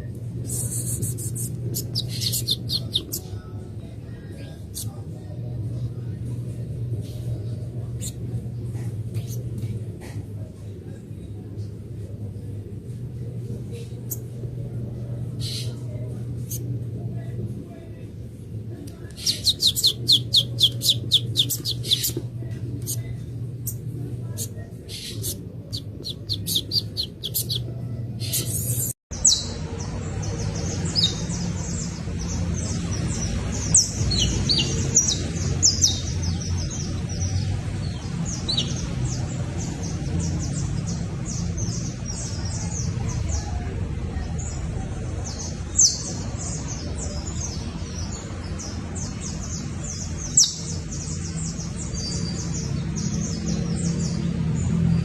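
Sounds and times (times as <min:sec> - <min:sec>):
steady low rumble: 0:00.0 - 0:55.0
finch chirping: 0:00.5 - 0:03.3, 0:19.2 - 0:22.2, 0:22.8 - 0:29.5.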